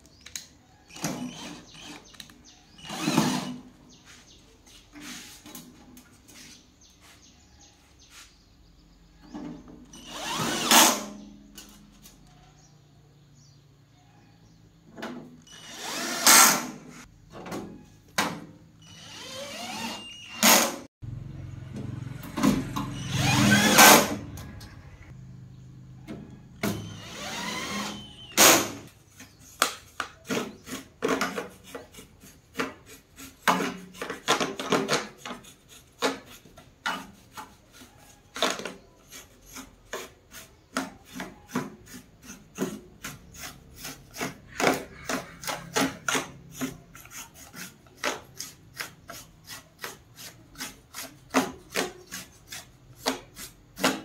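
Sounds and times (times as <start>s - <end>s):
hand scraping on hard surface: 3.9s - 8.4s.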